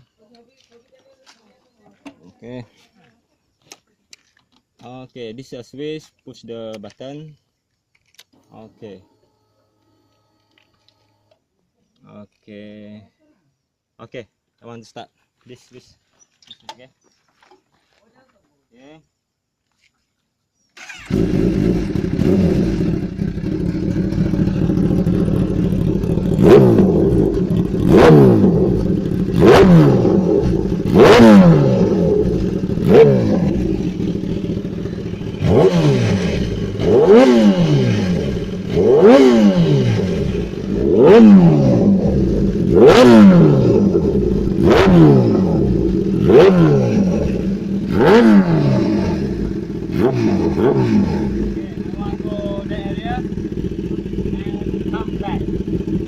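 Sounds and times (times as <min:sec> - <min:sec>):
motorcycle engine revving: 0:20.8 - 0:56.0.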